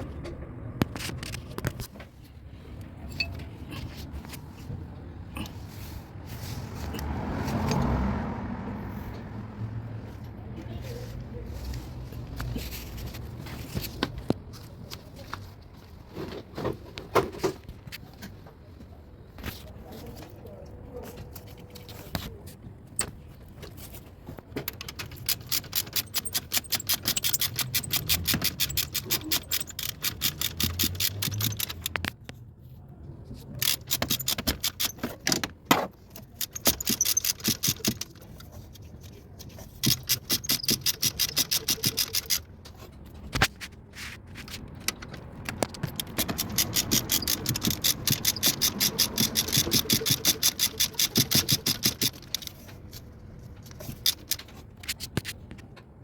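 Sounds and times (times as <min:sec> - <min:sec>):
ratchet wrench clicking: 0:24.8 - 0:32.2, 0:33.6 - 0:35.4, 0:36.1 - 0:38.8, 0:39.4 - 0:42.5, 0:45.8 - 0:52.7, 0:53.6 - 0:54.5.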